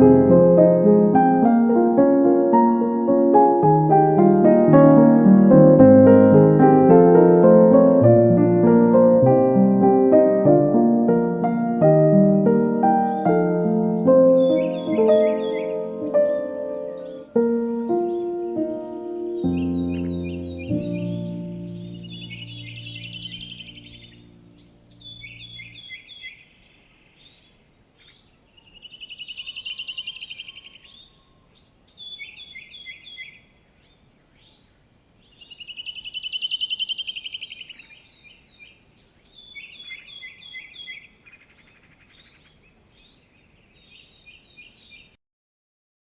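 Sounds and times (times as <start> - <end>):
soft background music: 0.0 - 25.7
songbirds singing: 12.7 - 45.2.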